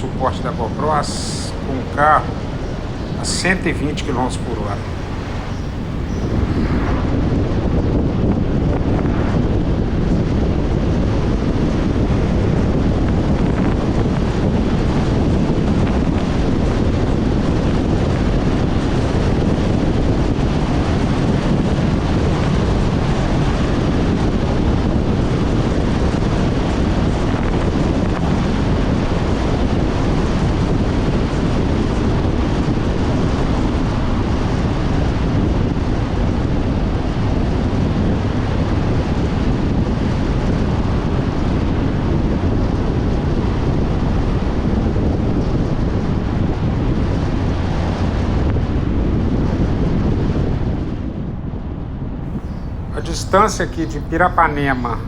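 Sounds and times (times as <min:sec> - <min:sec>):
road noise: 0:00.0 - 0:07.0
wind rush: 0:00.0 - 0:18.9.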